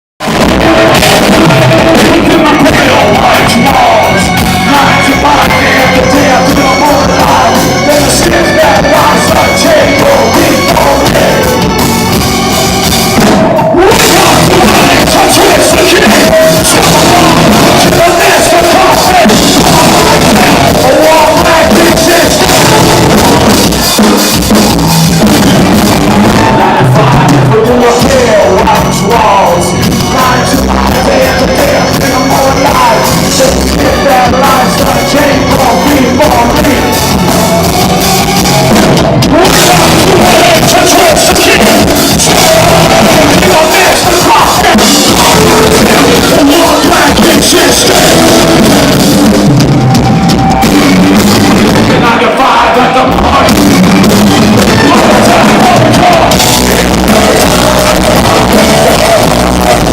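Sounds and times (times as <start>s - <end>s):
live rock band playing: 0.2s - 59.9s
singer singing and shouting: 0.2s - 59.9s.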